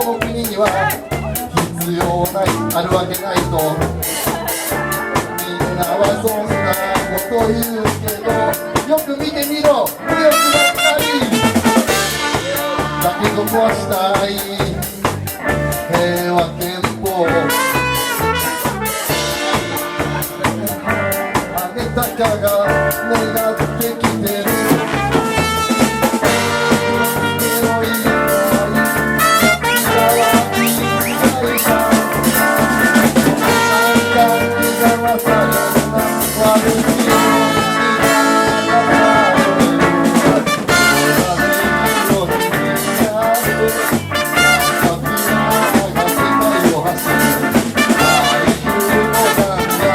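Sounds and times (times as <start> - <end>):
bass line: 0.0 - 49.9
drum kit beat: 0.0 - 49.9
horns playing melody: 10.2 - 13.4, 17.4 - 20.5, 24.5 - 49.9.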